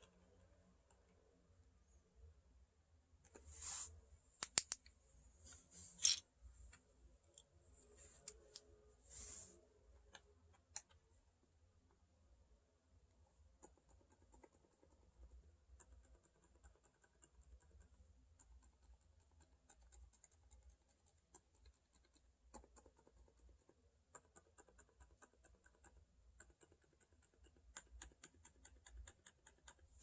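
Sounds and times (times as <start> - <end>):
soft mechanical keyboard typing: 13.4 - 30.0.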